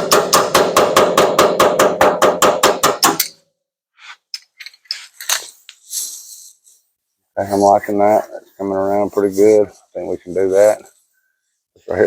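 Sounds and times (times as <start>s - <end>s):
hammer tapping sheet metal: 0.0s - 3.4s.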